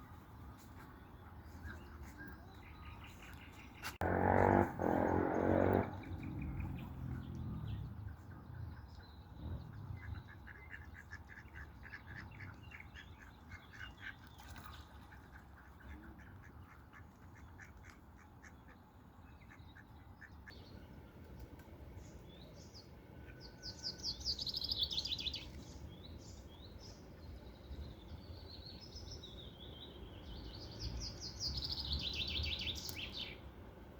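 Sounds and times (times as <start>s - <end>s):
ducks quacking: 3.9s - 6.8s.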